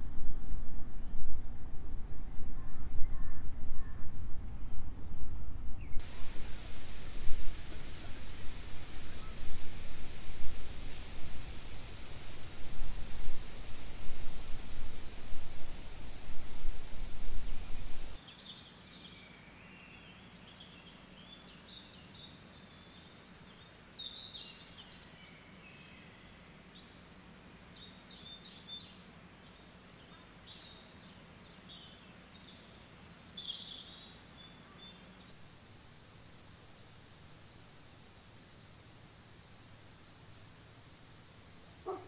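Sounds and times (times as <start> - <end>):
loud low rumbling noise: 0.0 - 18.2
songbirds chirping and trilling: 5.6 - 36.1, 40.0 - 42.0
steady high whine: 6.0 - 18.2.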